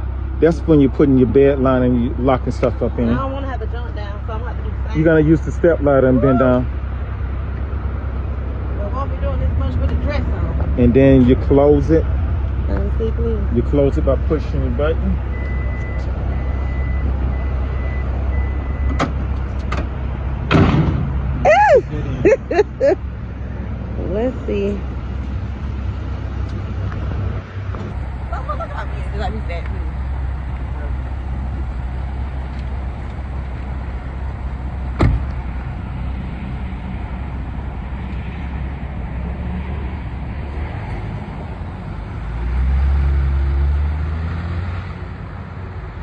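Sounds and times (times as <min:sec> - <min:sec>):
truck engine idling: 0:00.0 - 0:38.1
sharp thump: 0:18.9 - 0:21.2, 0:35.0 - 0:35.4
tailgate latching thump: 0:35.0 - 0:35.4.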